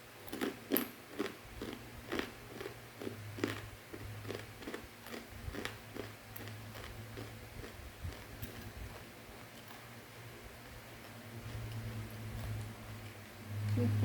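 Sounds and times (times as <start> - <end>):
chewing crunchy snack: 0.2 - 9.9.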